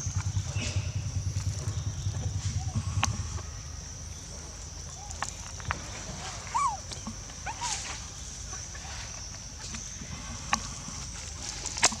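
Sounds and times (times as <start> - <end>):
baby monkey squeaks: 6.5 - 6.8.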